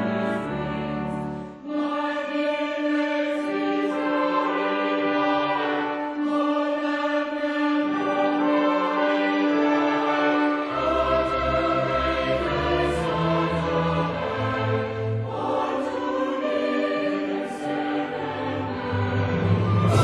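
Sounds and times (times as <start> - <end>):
choir and orchestra: 0.0 - 20.0.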